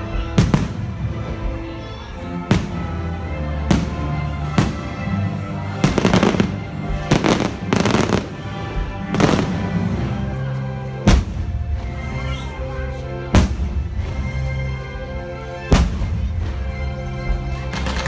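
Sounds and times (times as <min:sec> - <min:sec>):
music with long held notes: 0:00.0 - 0:18.0
fireworks bursting: 0:17.7 - 0:18.0.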